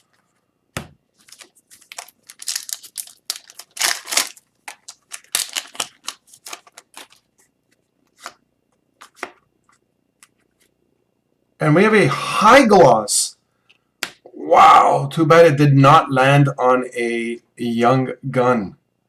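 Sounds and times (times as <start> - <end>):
cards rustling and flicking: 1.2 - 8.4.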